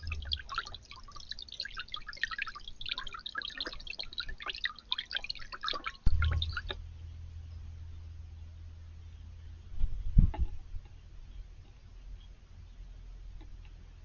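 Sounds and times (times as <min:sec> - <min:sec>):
low hum: 0:00.0 - 0:03.1, 0:05.9 - 0:13.9
water dripping and splashing: 0:00.0 - 0:06.8.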